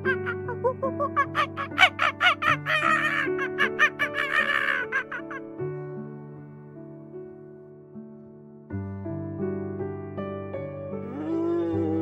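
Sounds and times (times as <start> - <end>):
soft background music: 0.0 - 12.0
monkey squeaky calls: 0.1 - 5.3.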